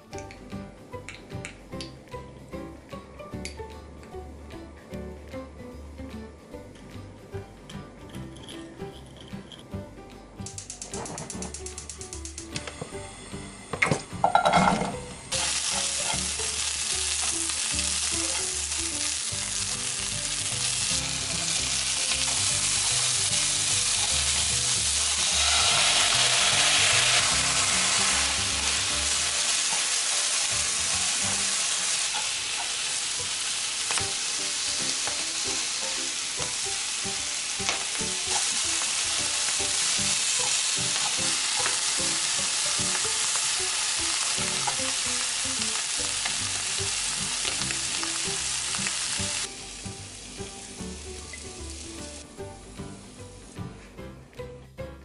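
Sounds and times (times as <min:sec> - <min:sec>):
food sizzling in oil in a frying pan: 0:14.2 - 0:52.2.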